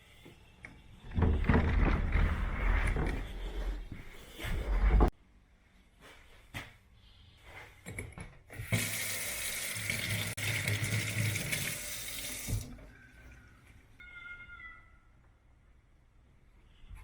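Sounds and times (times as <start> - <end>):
water running from a tap: 8.6 - 13.2.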